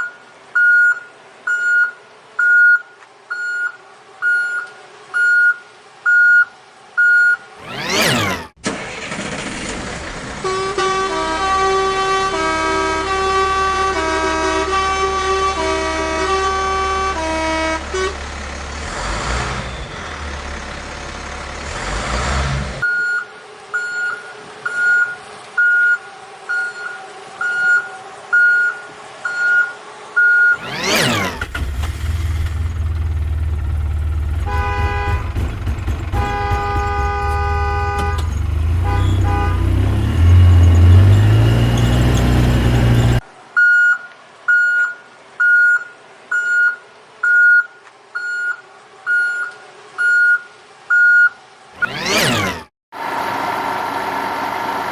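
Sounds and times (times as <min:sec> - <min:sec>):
reversing beeps: 0:00.0 - 0:08.4, 0:22.8 - 0:31.2, 0:42.9 - 0:52.4
vehicle horn blasts: 0:10.4 - 0:18.2, 0:34.2 - 0:43.2
low engine rumble: 0:31.4 - 0:43.2
two-note horn tune: 0:36.1 - 0:43.2.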